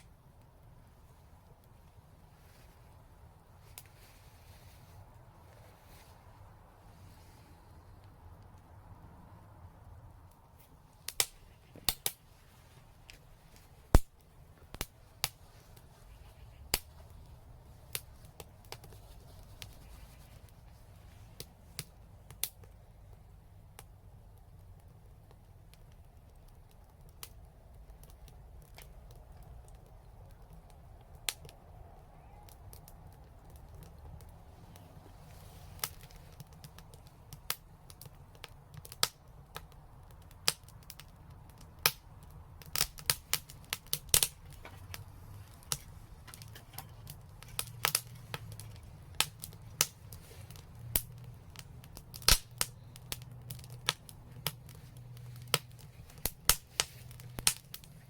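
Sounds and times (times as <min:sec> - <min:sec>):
low steady rumble: 0:00.0 - 0:58.0
wood fire crackling: 0:00.0 - 0:58.0.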